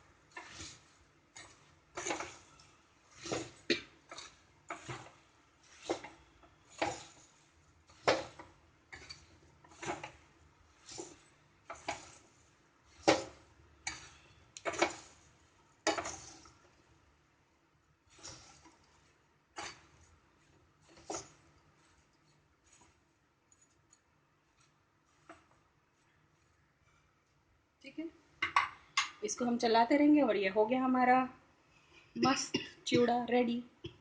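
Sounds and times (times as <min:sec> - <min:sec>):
spoon scraping a pan: 0:00.3 - 0:16.9, 0:18.1 - 0:27.1.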